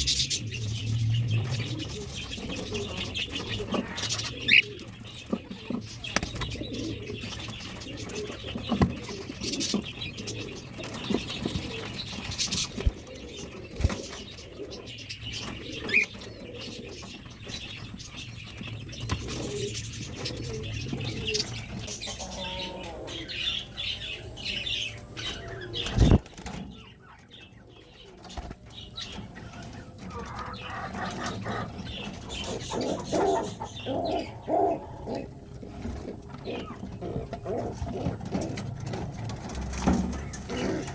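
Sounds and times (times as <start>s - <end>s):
pigeons cooing: 0.0s - 40.9s
wings flapping: 25.8s - 26.6s.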